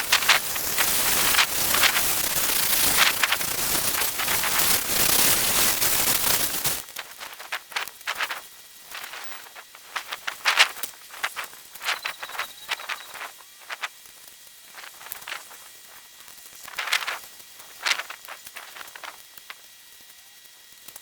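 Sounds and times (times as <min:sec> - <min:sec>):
heavy rain pattering: 0:00.0 - 0:06.8
scattered drop ticks: 0:00.0 - 0:13.9.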